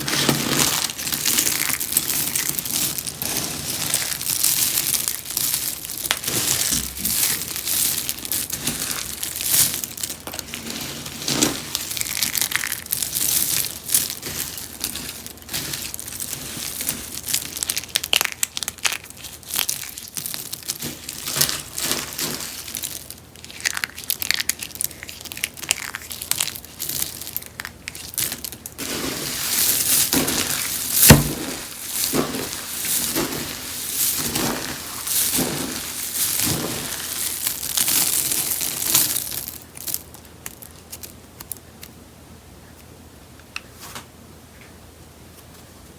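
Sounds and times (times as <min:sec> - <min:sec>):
soaps crunching and crackling: 0:00.0 - 0:42.0
sharp crack: 0:29.4 - 0:38.2.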